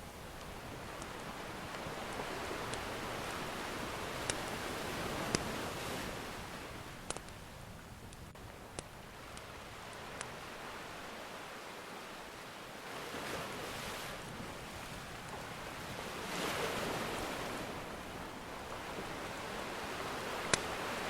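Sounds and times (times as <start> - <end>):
ocean surf washing in: 0.0 - 7.0, 9.0 - 21.0.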